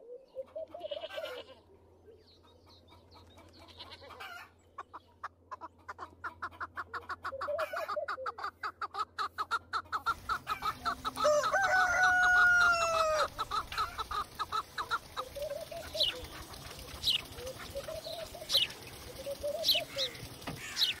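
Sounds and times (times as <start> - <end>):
chickens clucking: 0.0 - 21.0
rooster crowing: 11.1 - 13.4.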